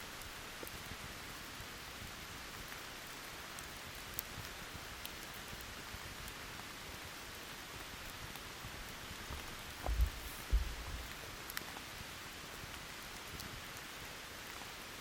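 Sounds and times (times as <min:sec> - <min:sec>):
steady rain: 0:00.0 - 0:15.0
campfire crackling: 0:00.2 - 0:15.0
low thumps: 0:09.8 - 0:11.1.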